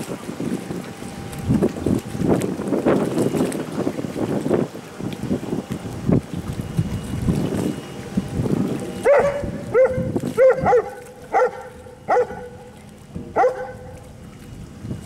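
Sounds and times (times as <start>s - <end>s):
wind buffeting microphone: 0.0s - 15.0s
dog barking: 9.1s - 12.6s, 13.4s - 13.8s.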